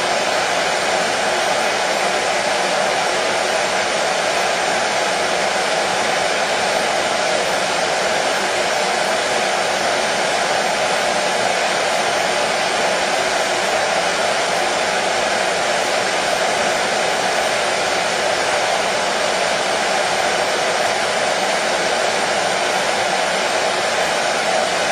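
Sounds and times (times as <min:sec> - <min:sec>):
hair dryer running: 0:00.0 - 0:24.9.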